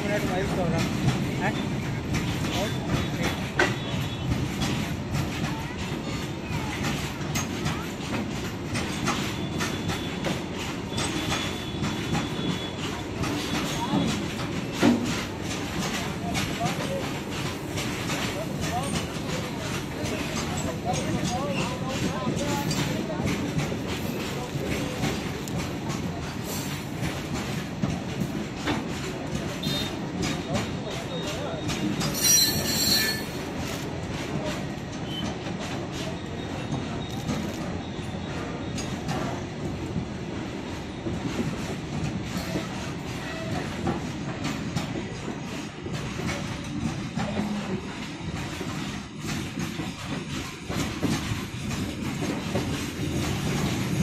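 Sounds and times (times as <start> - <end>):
train wheels clattering over rail joints: 0.0 - 54.0
metallic wheel squeal: 31.7 - 33.4.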